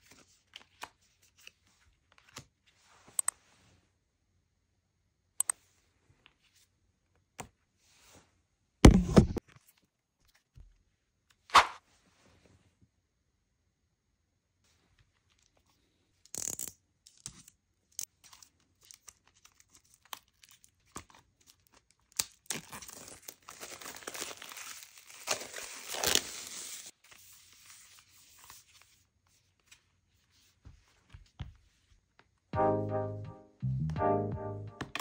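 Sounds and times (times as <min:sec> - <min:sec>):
plastic wrap crinkling and tearing: 0:18.4 - 0:27.0.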